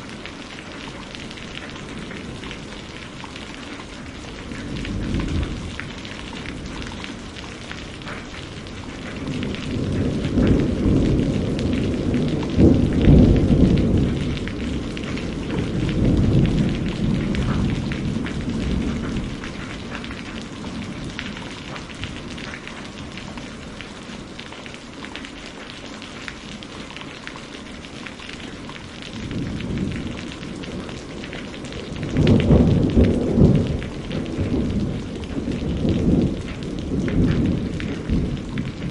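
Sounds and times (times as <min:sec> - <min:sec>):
steady rain: 0:00.0 - 0:38.9
rolling thunder: 0:04.1 - 0:24.4, 0:28.9 - 0:38.9.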